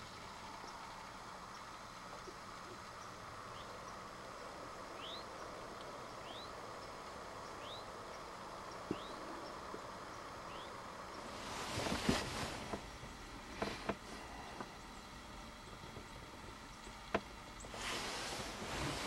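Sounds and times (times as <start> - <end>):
outdoor hiss: 0.0 - 19.0
bird chirping: 0.1 - 11.5
rustling: 11.2 - 14.7, 17.6 - 19.0.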